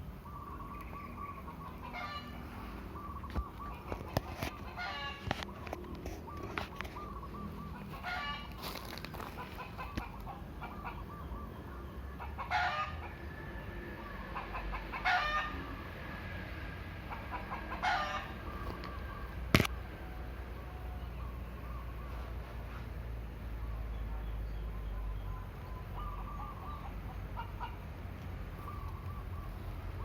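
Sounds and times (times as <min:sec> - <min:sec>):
chickens clucking and calling: 0:00.0 - 0:23.6, 0:24.7 - 0:30.0.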